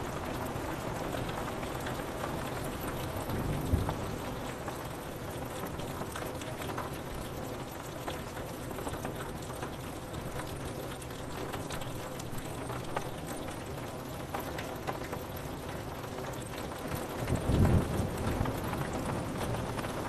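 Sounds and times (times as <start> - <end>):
rain pattering on window glass: 0.0 - 20.0
deep thunder rumble: 17.3 - 20.0.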